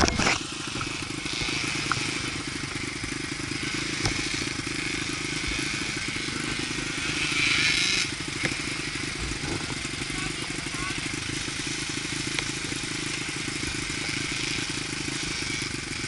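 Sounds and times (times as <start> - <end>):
dirt bike engine running: 0.0 - 16.0.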